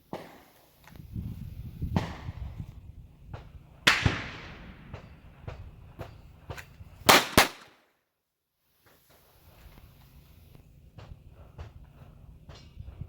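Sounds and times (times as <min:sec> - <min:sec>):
pistol shots echoing: 0:03.8 - 0:05.4, 0:07.1 - 0:07.8.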